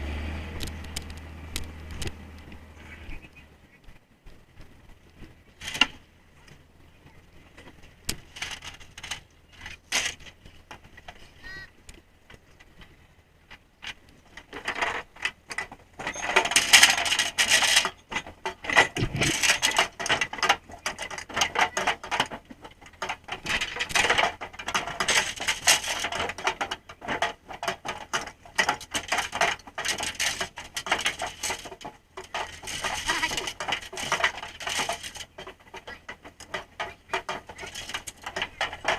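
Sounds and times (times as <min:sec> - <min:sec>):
boat engine humming: 0:00.0 - 0:38.9
clattering and crackling on deck: 0:00.6 - 0:38.9
scattered knocks: 0:14.5 - 0:38.9.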